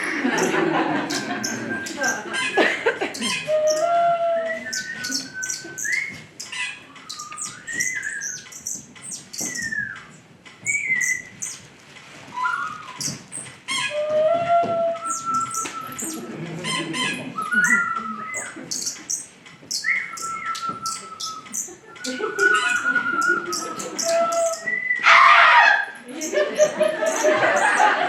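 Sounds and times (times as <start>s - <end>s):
sliding whistled tones: 0.2s - 2.3s, 3.2s - 11.7s, 12.3s - 16.3s, 17.3s - 28.0s
bird-like chirps and squawks: 0.3s - 4.0s, 4.6s - 9.8s, 15.1s - 28.0s.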